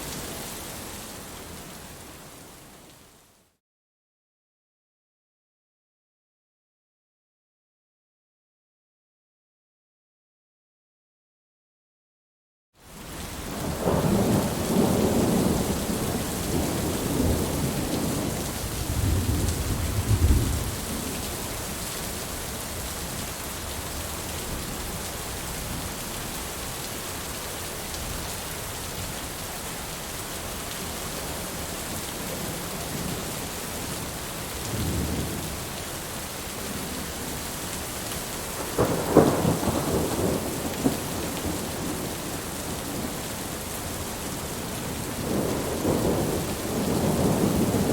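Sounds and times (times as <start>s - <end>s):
steady rain: 0.0s - 3.5s, 12.8s - 47.9s
rolling thunder: 13.6s - 21.0s, 34.7s - 35.4s, 38.6s - 42.2s, 45.0s - 47.9s.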